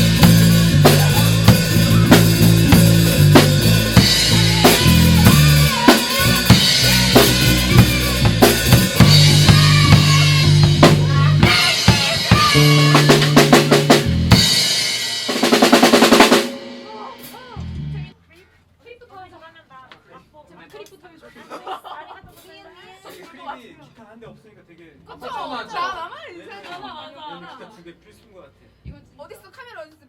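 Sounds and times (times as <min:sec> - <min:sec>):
fast drum roll: 0:00.0 - 0:17.7
drum kit: 0:00.0 - 0:18.1
rock band playing: 0:00.0 - 0:18.1.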